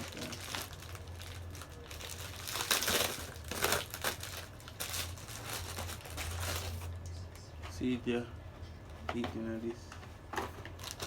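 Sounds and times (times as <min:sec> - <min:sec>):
packaging crinkling and rustling: 0:00.0 - 0:06.9, 0:10.5 - 0:11.0
steady low hum: 0:00.0 - 0:11.0.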